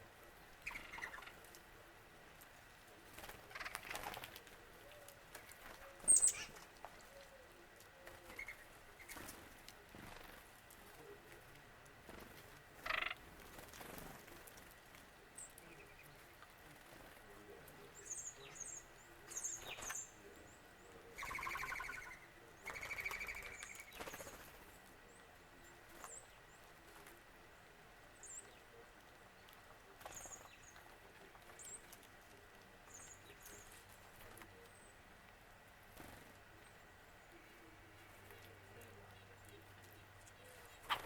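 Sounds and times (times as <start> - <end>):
bird trilling calls: 0.6 - 1.4, 6.0 - 6.6, 12.8 - 13.2, 21.2 - 24.0
high chip notes of birds: 17.9 - 24.0.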